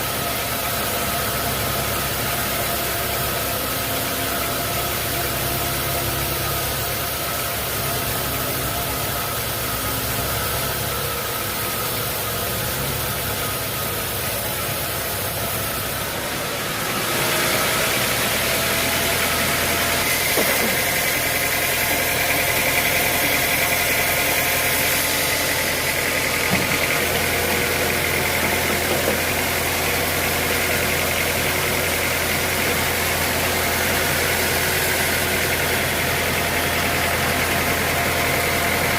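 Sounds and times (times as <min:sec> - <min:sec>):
sawmill machinery running: 0:00.0 - 0:38.9.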